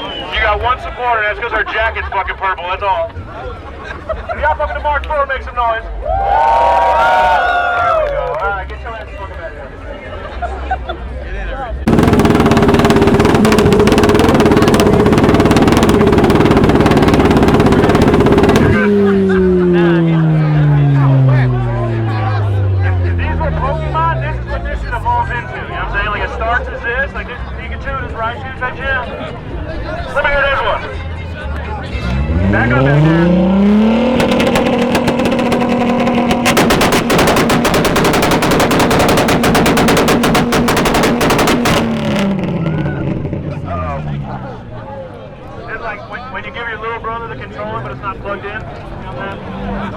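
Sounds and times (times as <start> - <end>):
exhaust pops and bangs: 11.9 - 21.6, 32.1 - 43.6
car engine at high revs: 11.9 - 25.5, 31.8 - 44.8.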